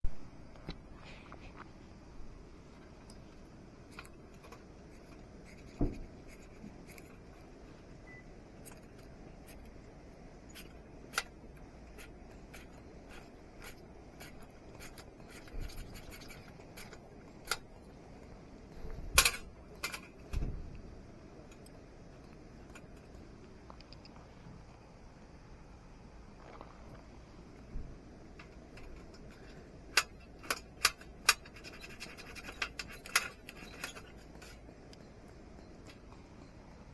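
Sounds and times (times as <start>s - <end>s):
sharp scrape and clatter: 28.8s - 34.7s.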